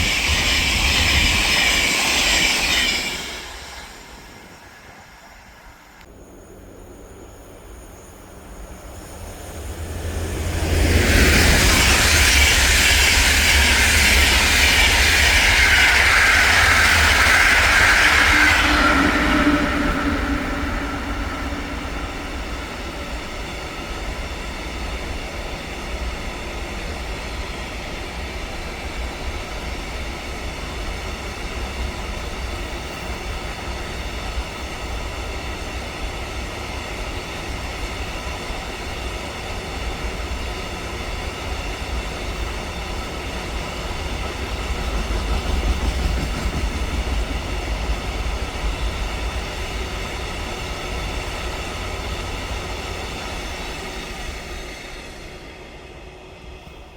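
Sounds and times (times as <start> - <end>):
train wheels clickety-clack: 0.0 - 5.4, 8.7 - 56.9
train passing: 0.0 - 56.9.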